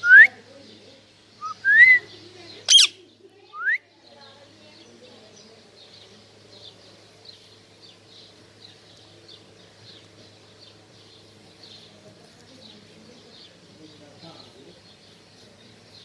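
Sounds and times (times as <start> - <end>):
high bird chirps: 2.7 - 3.0.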